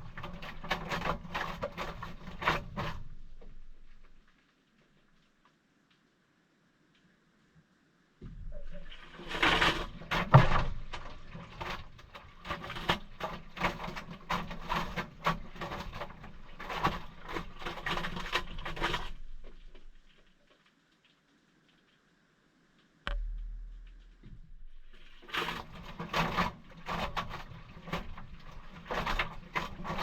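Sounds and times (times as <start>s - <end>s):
water and wet towels sloshing: 8.7s - 20.2s, 24.9s - 30.0s.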